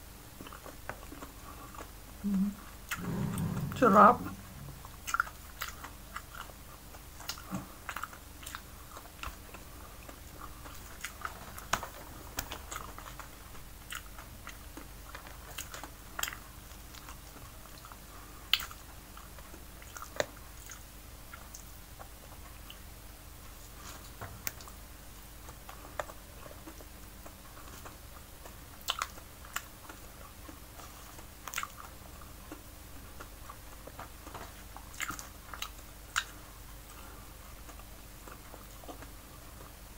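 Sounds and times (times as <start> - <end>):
chewing and mouth smacks: 5.1 - 22.8, 25.4 - 36.5.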